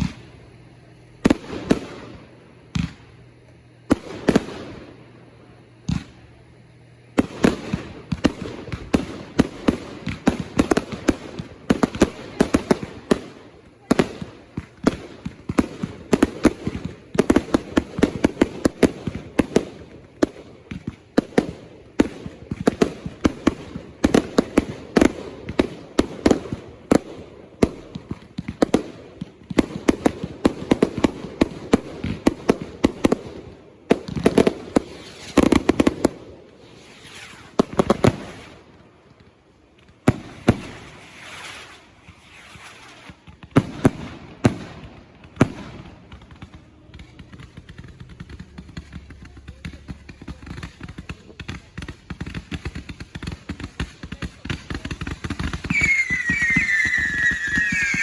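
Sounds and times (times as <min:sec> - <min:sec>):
fireworks bangs and crackles: 0:00.0 - 0:58.0
firework hiss: 0:07.1 - 0:38.8, 0:39.9 - 0:46.3, 0:54.8 - 0:58.0.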